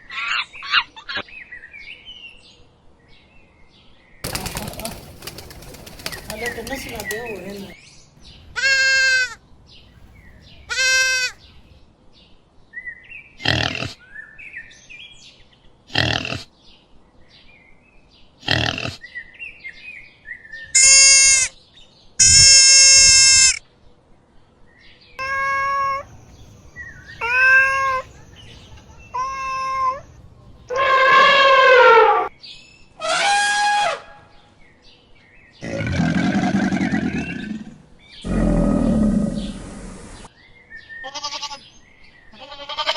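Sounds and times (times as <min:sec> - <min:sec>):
farm animals calling: 0:04.3 - 0:11.8, 0:20.8 - 0:21.5, 0:22.2 - 0:23.6, 0:25.2 - 0:32.3, 0:35.6 - 0:40.3, 0:41.0 - 0:41.6, 0:42.3 - 0:42.9
low hoarse animal call: 0:08.2 - 0:11.8, 0:25.2 - 0:32.3, 0:35.6 - 0:40.2.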